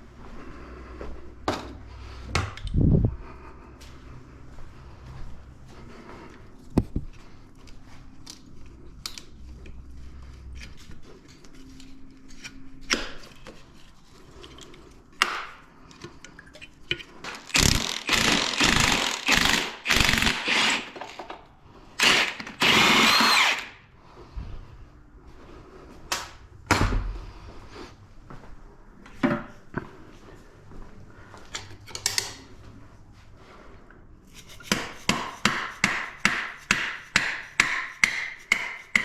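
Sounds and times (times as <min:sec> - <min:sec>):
tools clicking and knocking: 0:14.4 - 0:23.6, 0:31.5 - 0:32.5
power tool whirring: 0:17.3 - 0:21.4, 0:22.0 - 0:23.8.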